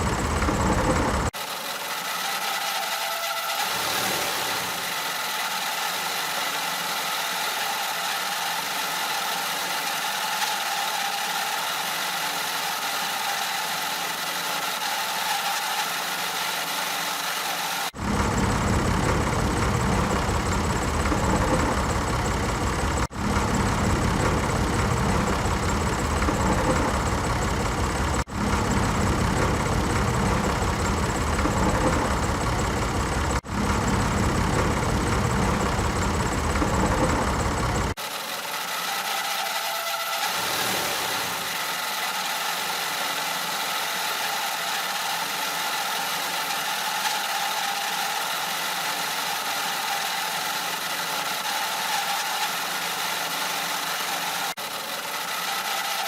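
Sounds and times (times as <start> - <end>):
deep engine running: 0.0 - 1.4, 18.0 - 38.0
small motor whining: 0.0 - 56.0.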